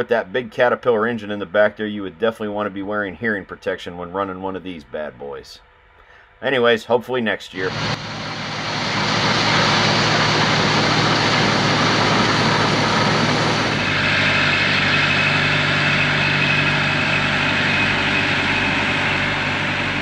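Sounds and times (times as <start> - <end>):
thin high whine: 7.5 - 20.0
silage machinery running: 7.6 - 20.0
tractor engine: 7.6 - 20.0.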